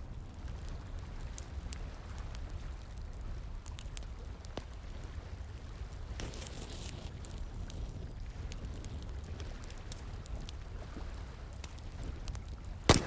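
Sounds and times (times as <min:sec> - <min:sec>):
wood fire crackling and popping: 0:00.2 - 0:13.0.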